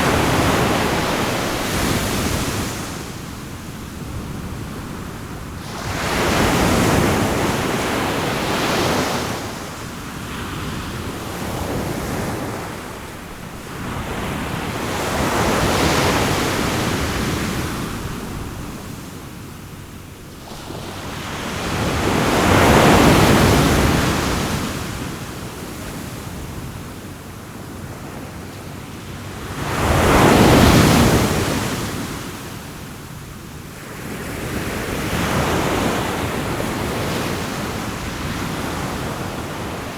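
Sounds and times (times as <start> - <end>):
sea waves washing ashore: 0.0 - 25.7, 33.8 - 39.9.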